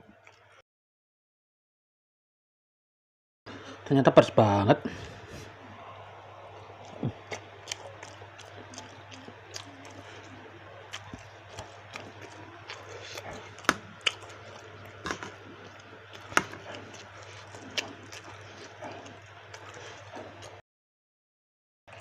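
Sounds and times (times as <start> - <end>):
chewing with crunches: 0.0 - 0.6, 5.0 - 20.6.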